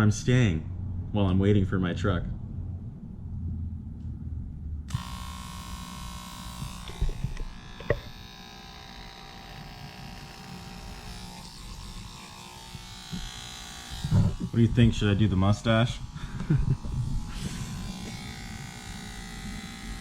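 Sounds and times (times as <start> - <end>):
electric shaver buzzing: 4.9 - 20.0.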